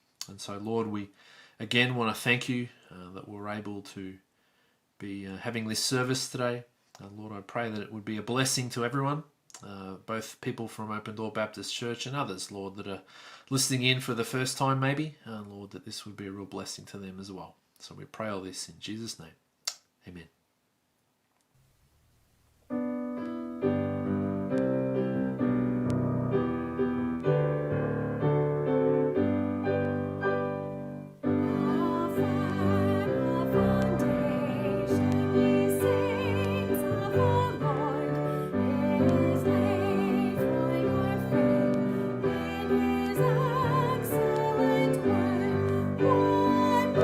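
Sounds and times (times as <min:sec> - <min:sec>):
piano playing slow chords: 0:22.7 - 0:47.0
person singing with vibrato: 0:31.2 - 0:47.0.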